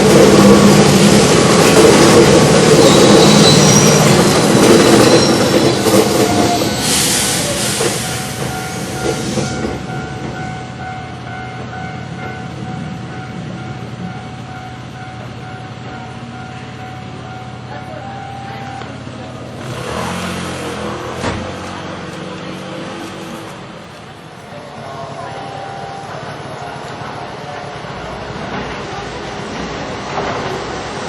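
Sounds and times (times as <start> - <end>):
train wheels clattering on rails: 0.0 - 17.2, 26.4 - 31.0.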